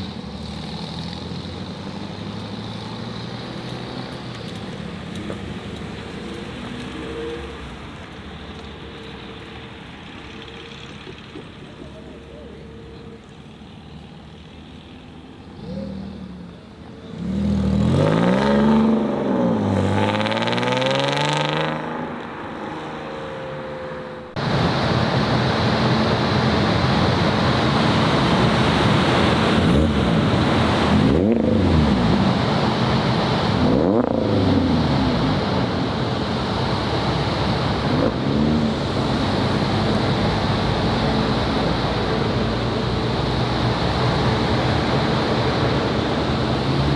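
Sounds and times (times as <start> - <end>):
car engines revving: 0.0 - 46.9
loud steady rushing noise: 21.5 - 46.9.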